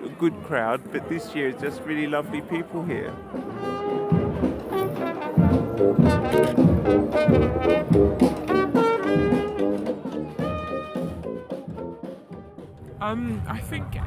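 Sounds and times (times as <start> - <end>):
brass band playing: 1.0 - 12.8
drum beat: 2.8 - 13.0.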